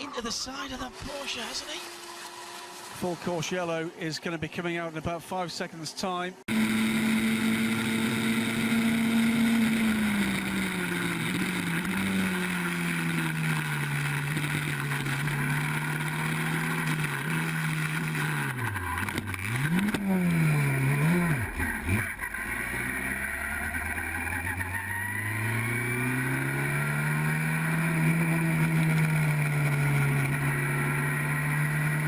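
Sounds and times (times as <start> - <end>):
racing car engine revving: 6.5 - 32.0.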